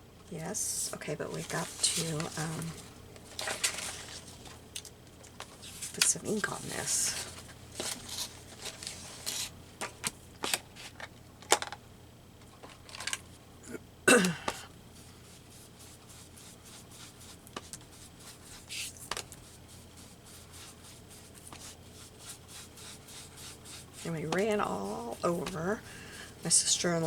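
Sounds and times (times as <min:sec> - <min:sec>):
paper and craft supplies handled: 0:01.2 - 0:04.6, 0:05.4 - 0:11.7, 0:20.3 - 0:27.0.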